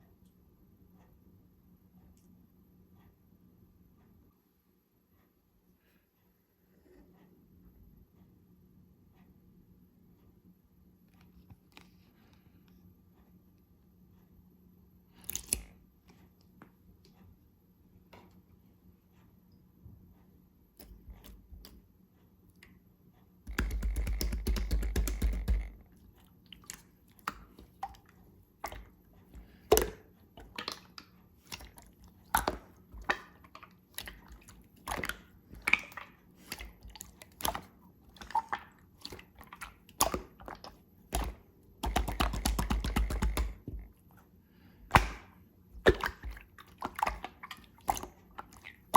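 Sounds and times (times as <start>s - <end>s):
slime squishing with clicks: 15.1s - 17.3s, 20.7s - 48.9s.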